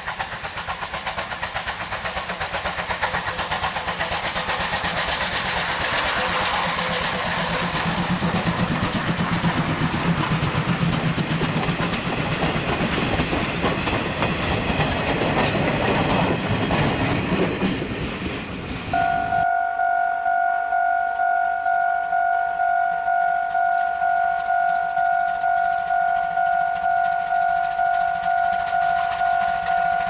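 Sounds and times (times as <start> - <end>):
train wheels clattering over rails: 0.0 - 19.0, 23.7 - 30.0
level-crossing bell ringing: 19.0 - 30.0.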